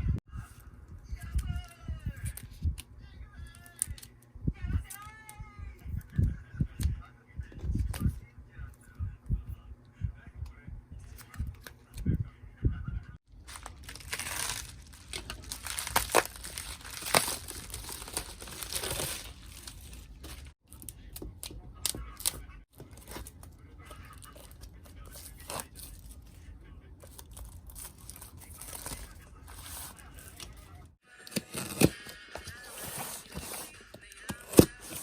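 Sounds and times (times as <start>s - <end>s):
plastic packaging crinkling: 13.4s - 21.0s.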